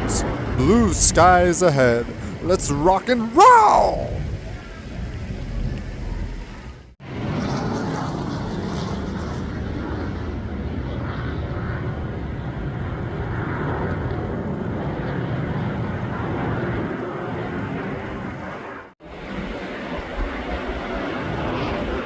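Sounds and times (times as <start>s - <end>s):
jet engine noise: 0.0s - 2.9s.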